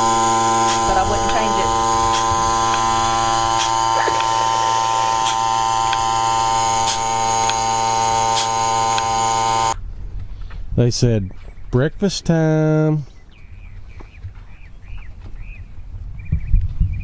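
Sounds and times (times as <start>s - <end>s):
motor buzzing hum: 0.0s - 9.8s.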